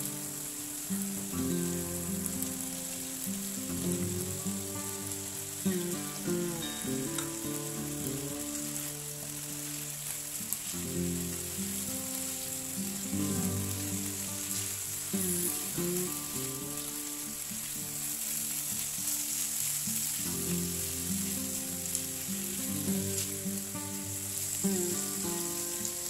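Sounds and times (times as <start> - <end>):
food sizzling in a pan: 0.0 - 26.0.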